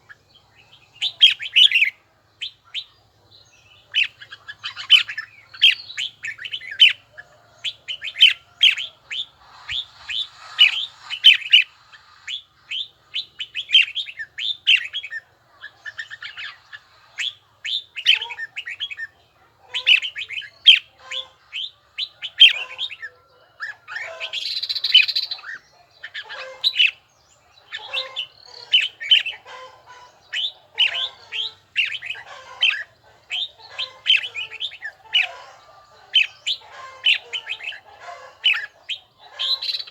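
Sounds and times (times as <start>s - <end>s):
scratchy burst: 9.1s - 12.4s.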